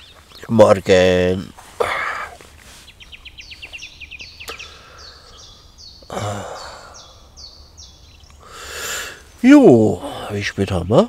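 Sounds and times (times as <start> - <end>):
songbird singing: 0.0 - 11.0
person sighing: 1.8 - 2.4, 6.1 - 7.2.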